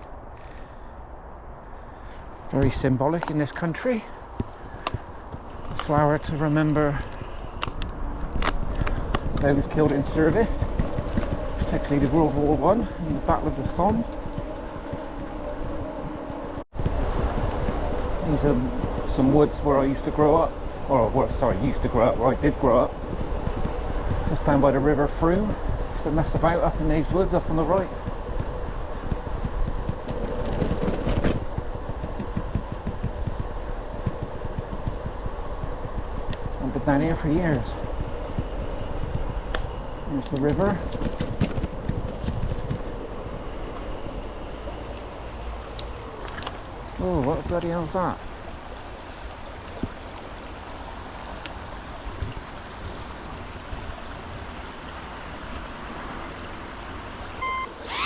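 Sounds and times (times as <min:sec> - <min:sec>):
wind rush: 0:00.0 - 0:49.0
low buffeting: 0:00.0 - 0:52.6
tyre rumble: 0:23.2 - 0:47.6
faint steady hum: 0:23.7 - 0:58.0
river water rushing: 0:42.7 - 0:58.0
short electronic beep: 0:57.4 - 0:57.8.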